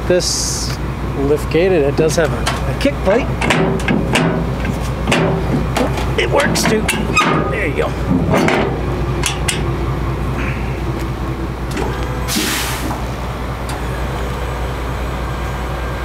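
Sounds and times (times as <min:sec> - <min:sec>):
low motor hum: 0:00.0 - 0:16.0
sharp clicks and clanks: 0:03.4 - 0:09.7
short hiss: 0:12.3 - 0:13.0.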